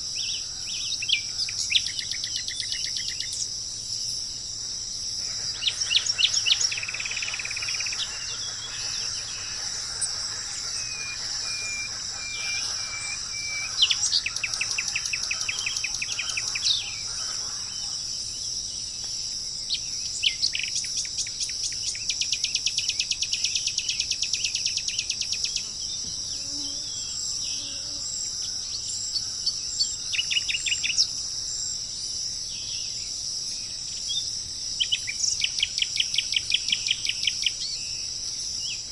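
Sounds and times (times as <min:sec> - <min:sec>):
high-pitched insect drone: 0:02.1 - 0:18.6
birds calling in quick notes: 0:05.2 - 0:18.2.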